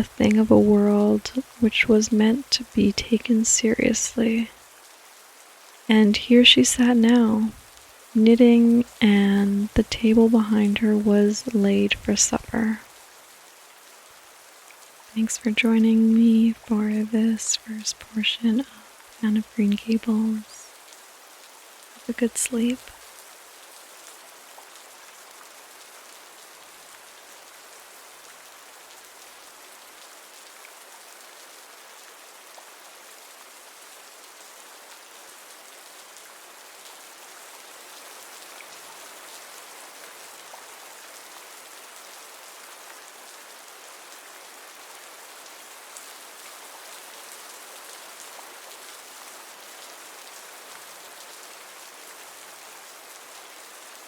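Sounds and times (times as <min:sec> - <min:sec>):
raindrops ticking: 0:00.0 - 0:04.6, 0:05.9 - 0:12.8, 0:15.1 - 0:20.7, 0:21.9 - 0:23.0
steady rain hiss: 0:00.0 - 0:54.0.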